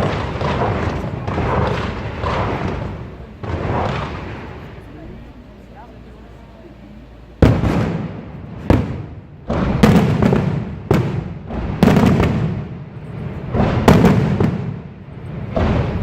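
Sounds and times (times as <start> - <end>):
fireworks bursting with rumble: 0.0 - 16.0.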